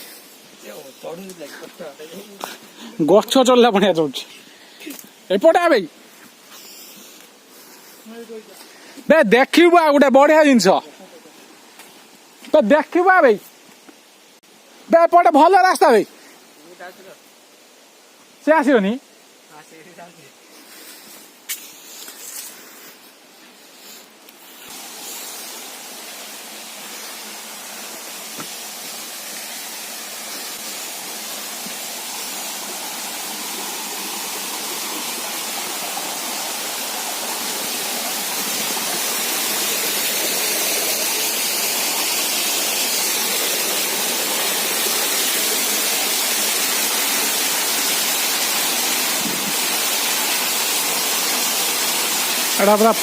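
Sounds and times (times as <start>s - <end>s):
waterfall rushing: 24.6s - 53.0s.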